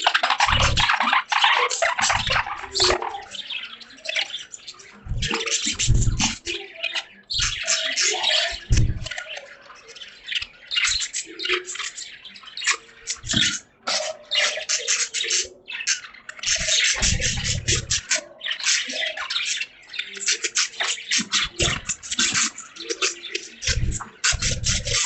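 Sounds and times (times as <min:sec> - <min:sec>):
budgies chattering and warbling: 0:00.0 - 0:25.0
low rumble: 0:05.1 - 0:06.4.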